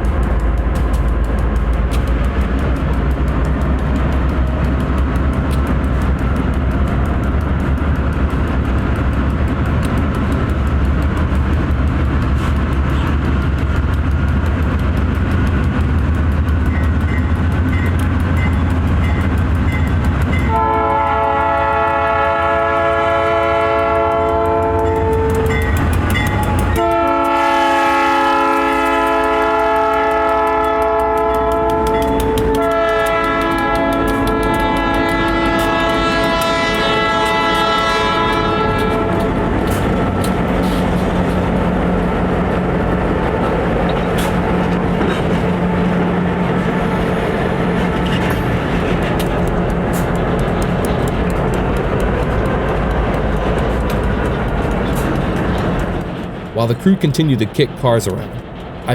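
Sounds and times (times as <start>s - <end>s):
locomotive air horn blasts: 20.5s - 25.6s, 26.8s - 39.4s.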